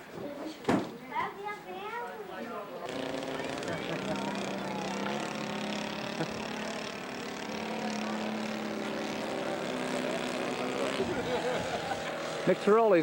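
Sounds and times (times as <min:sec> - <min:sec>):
model airplane engine running: 0:02.9 - 0:13.0.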